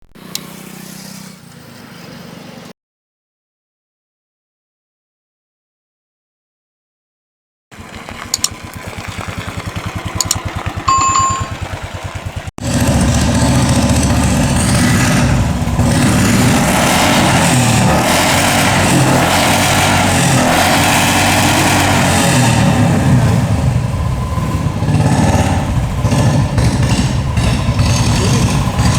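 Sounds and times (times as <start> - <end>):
motorcycle engine idling: 7.7 - 17.9, 22.5 - 28.9
clicks: 10.2 - 11.6
short beep: 10.9 - 11.6.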